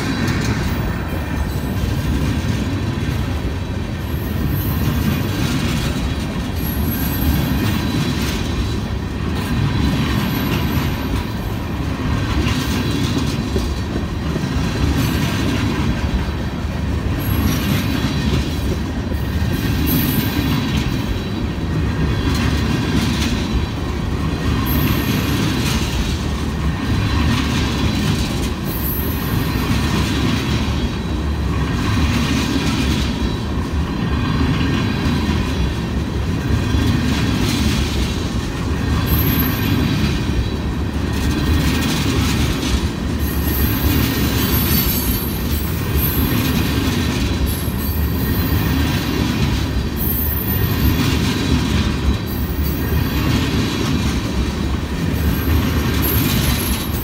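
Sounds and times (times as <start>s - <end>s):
steel wheels rumbling on rail: 0.0s - 57.0s
high wheel squeals: 43.2s - 46.4s, 50.0s - 51.0s.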